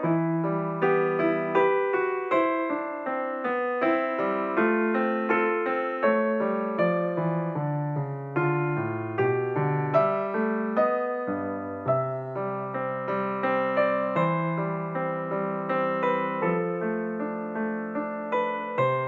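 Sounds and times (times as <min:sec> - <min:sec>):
solo piano melody: 0:00.0 - 0:19.0.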